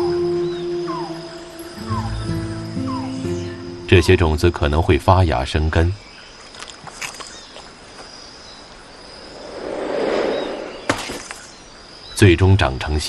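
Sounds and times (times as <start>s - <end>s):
faint bird chirps: 0.0s - 4.5s, 6.0s - 12.6s
high insect tone: 0.0s - 13.0s
soft whooshing: 9.0s - 11.7s.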